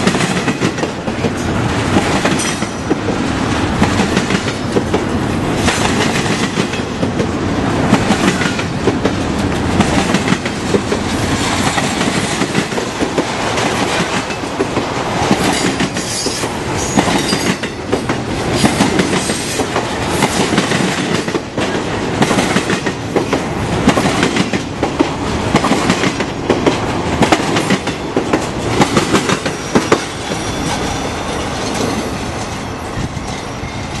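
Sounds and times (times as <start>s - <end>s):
train cars rumbling past: 0.0s - 34.0s.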